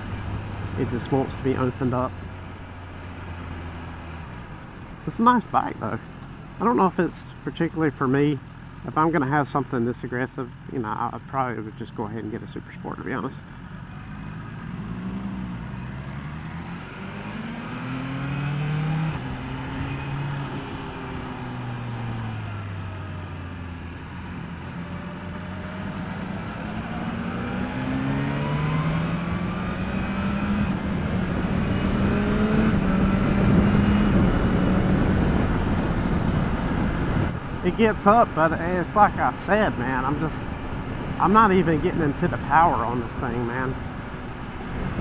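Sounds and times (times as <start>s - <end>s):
motorcycle engine revving: 13.4s - 45.0s
wind rush: 30.3s - 38.0s, 43.8s - 45.0s.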